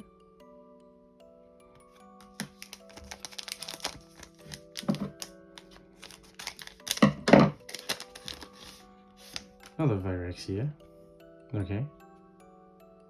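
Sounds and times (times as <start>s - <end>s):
soft background music: 0.0s - 13.0s
card wrapper crackles and thumps: 2.2s - 9.8s
trading cards clicking: 2.2s - 9.8s.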